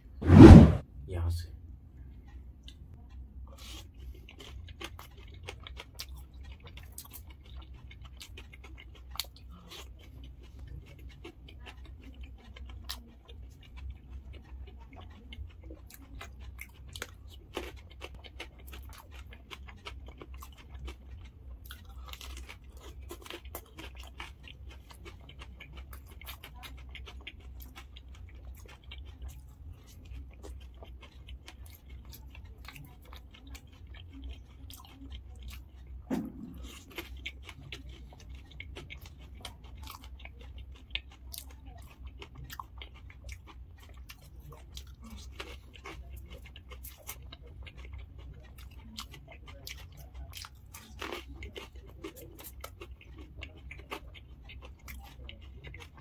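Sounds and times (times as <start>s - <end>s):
chewing and crunching: 2.2s - 56.0s
steady low hum: 34.1s - 39.5s.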